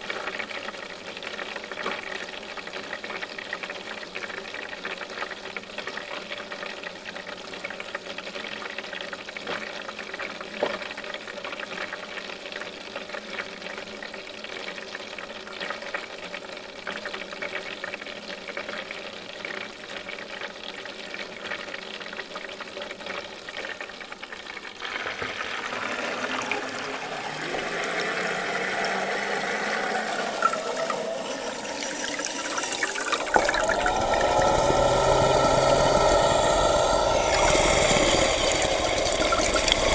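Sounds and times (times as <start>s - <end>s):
water pouring and sloshing: 24.7s - 39.9s
wavering tones: 26.1s - 39.9s.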